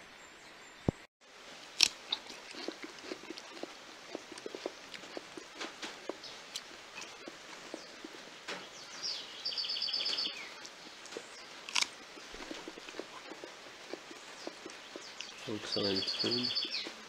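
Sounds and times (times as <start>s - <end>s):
loud crisp bite crunch: 1.6s - 8.3s, 10.4s - 15.5s
chewing crunches: 1.6s - 17.0s.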